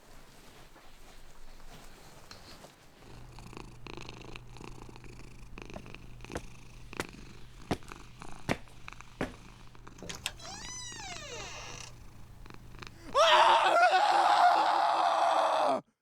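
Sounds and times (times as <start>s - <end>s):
low steady purring: 1.6s - 13.2s.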